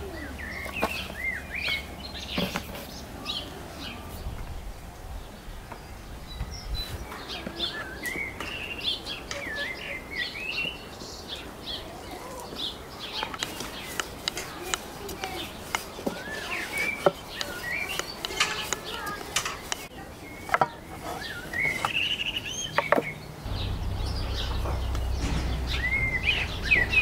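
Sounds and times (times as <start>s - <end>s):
songbirds chirping and warbling: 0.0s - 27.0s.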